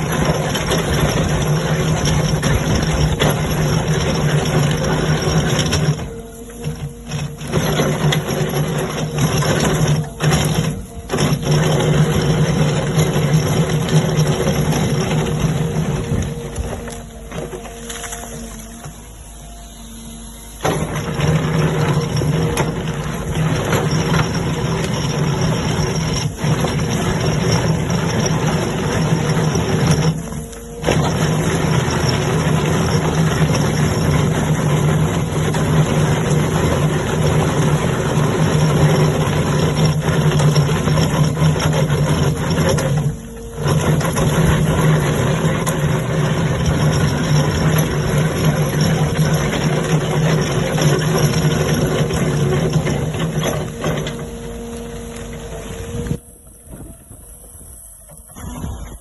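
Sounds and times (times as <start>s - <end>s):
rock-grinding machine engine drone: 0.0s - 59.0s.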